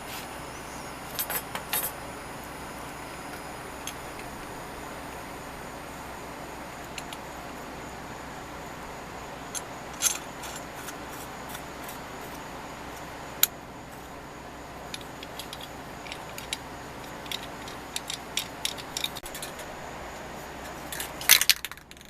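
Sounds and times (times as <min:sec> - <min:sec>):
steady hiss: 0:00.0 - 0:22.0
small metal tool parts clicking: 0:09.6 - 0:11.6, 0:14.9 - 0:19.7, 0:20.9 - 0:22.0.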